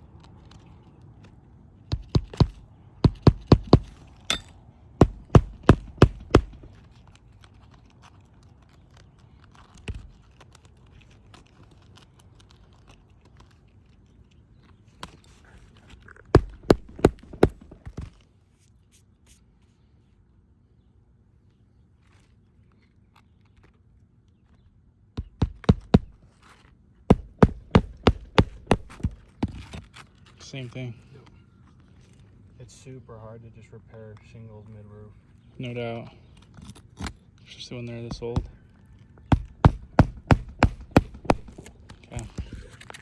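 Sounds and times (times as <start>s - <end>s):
nails driven into shingles: 1.9s - 7.1s, 16.2s - 18.2s, 25.2s - 26.4s, 27.1s - 29.9s, 37.9s - 43.0s.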